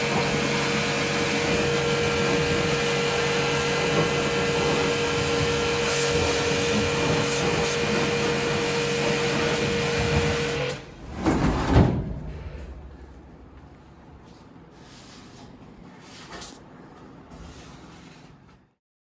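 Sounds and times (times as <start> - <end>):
low rumble and knock: 10.9 - 14.7.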